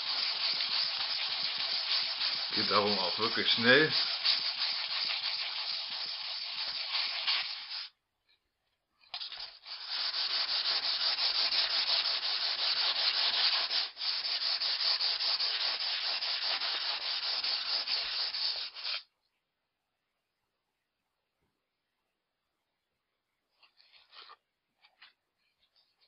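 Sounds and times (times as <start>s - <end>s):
axe head scraping on sandpaper: 0.0s - 7.9s, 9.2s - 19.0s.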